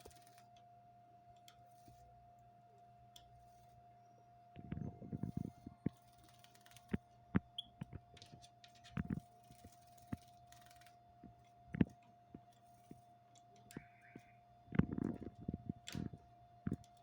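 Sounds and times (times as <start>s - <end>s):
faint steady hum: 0.0s - 17.0s
bird clicking and tapping in cage: 4.6s - 17.0s.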